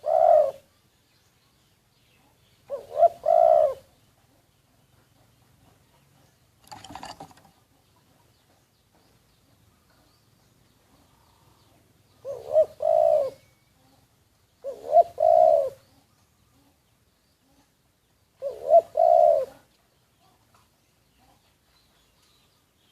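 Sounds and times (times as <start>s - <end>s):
dove cooing: 0.0s - 0.7s, 2.6s - 4.0s, 12.2s - 14.0s, 14.6s - 16.7s, 18.4s - 19.7s.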